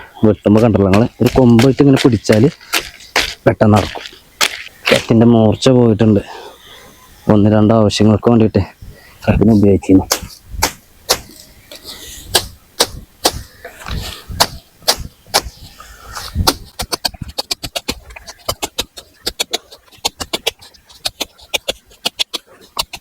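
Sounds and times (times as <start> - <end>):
blade chopping brush: 0.4 - 5.3, 10.0 - 23.0.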